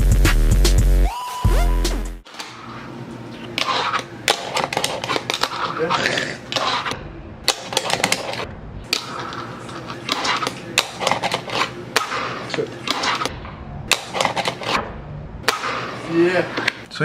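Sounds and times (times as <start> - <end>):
fingerboard wheels rolling: 3.4 - 11.7.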